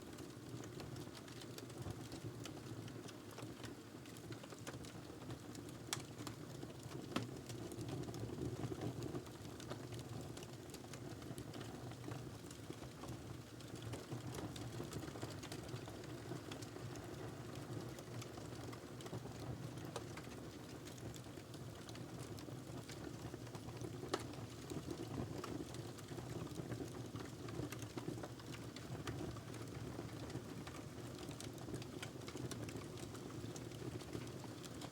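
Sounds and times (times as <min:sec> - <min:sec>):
wood fire crackling: 0:10.4 - 0:34.8.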